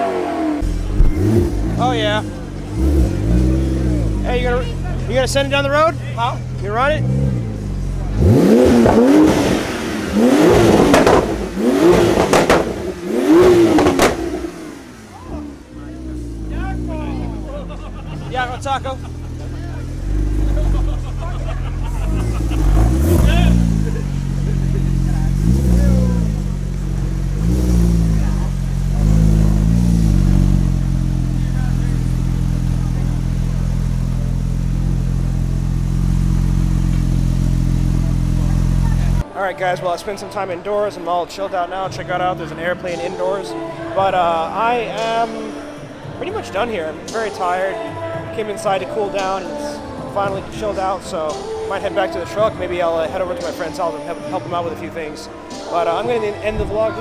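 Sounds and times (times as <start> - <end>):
exhaust pops: 0.0 - 17.0, 18.2 - 39.2
sports car engine revving: 0.0 - 39.3.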